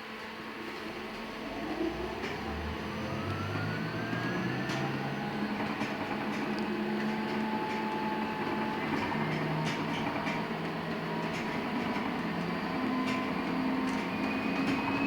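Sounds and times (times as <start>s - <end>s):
bus running hum: 0.0s - 15.0s
road noise: 0.4s - 9.4s.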